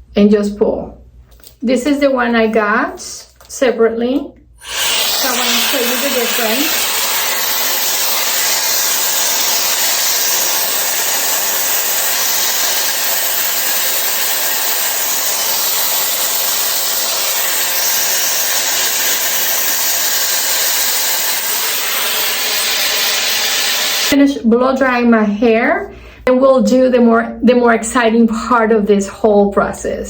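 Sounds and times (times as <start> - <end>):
hair dryer blowing air: 4.6 - 24.2.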